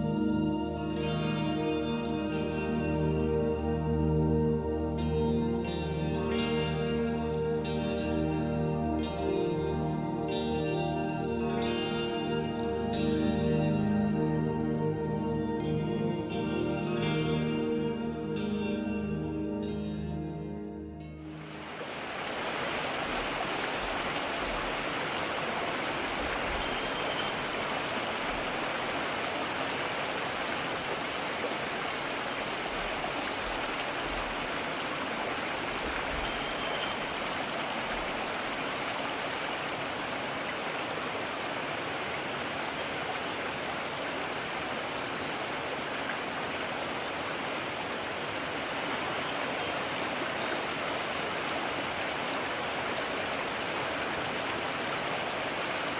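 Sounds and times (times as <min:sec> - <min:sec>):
stream water rushing: 0:21.2 - 0:55.9.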